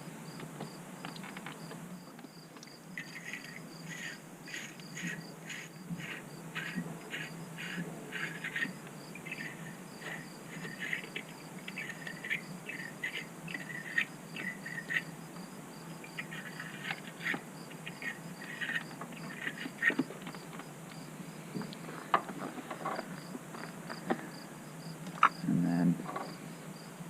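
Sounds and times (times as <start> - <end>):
wire brush rasping strokes: 3.0 - 15.1.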